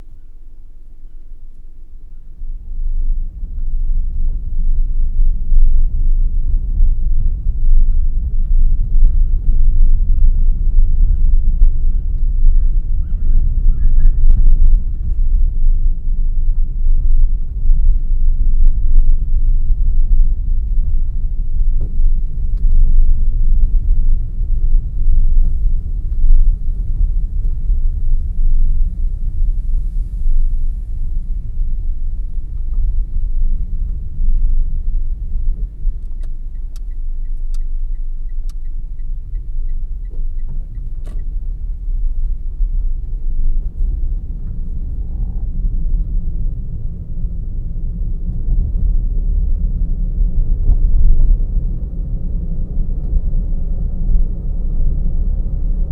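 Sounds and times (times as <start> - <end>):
car road and engine rumble: 0.0 - 55.9.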